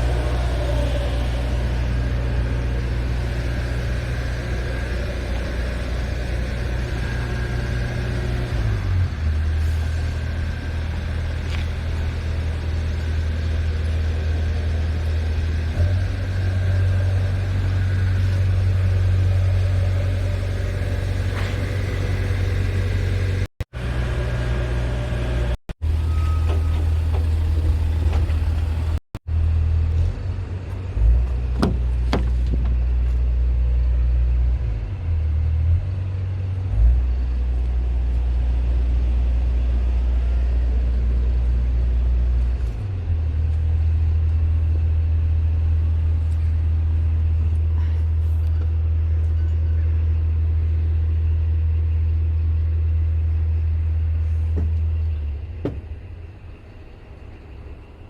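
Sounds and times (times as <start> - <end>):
diesel truck engine rumble: 0.0 - 58.0.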